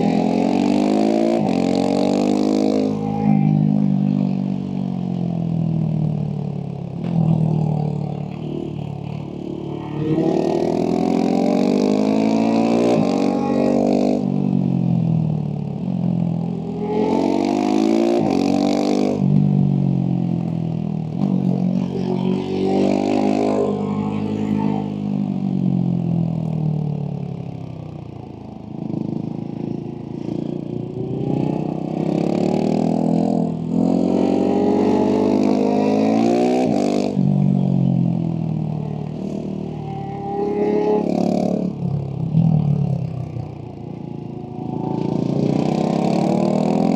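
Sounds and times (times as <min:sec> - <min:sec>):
motorcycle engine revving: 0:00.0 - 0:04.6, 0:07.0 - 0:15.2, 0:15.8 - 0:26.6, 0:27.2 - 0:46.9.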